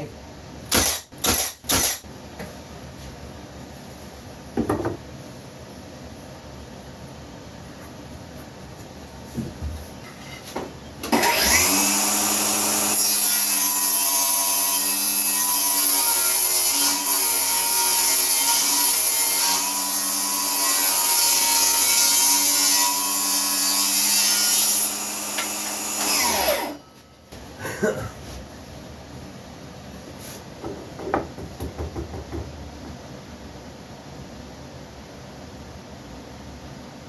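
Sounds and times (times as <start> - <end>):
power tool motor working wood: 11.1 - 13.6, 23.6 - 26.8.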